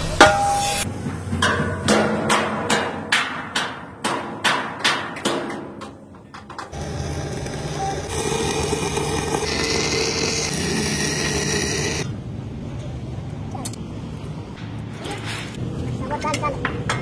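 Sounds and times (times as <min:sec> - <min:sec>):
loud mechanical noise with hiss: 0:06.7 - 0:12.1.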